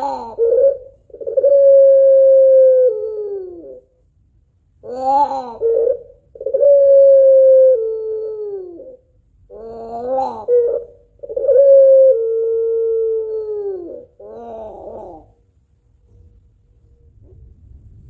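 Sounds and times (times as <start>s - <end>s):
dove cooing: 0.0s - 3.9s, 4.8s - 15.4s.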